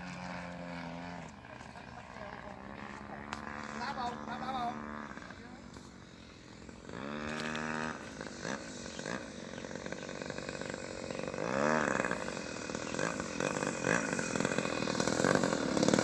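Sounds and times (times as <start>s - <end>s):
model airplane engine buzzing: 0.0s - 16.0s.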